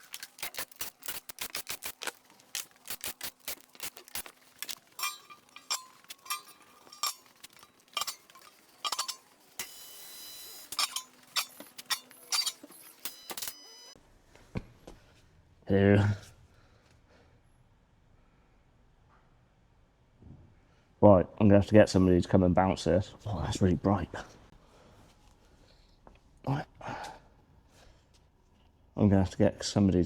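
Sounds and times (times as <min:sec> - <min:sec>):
metallic clicks of tools: 0:00.0 - 0:09.8, 0:10.6 - 0:13.6.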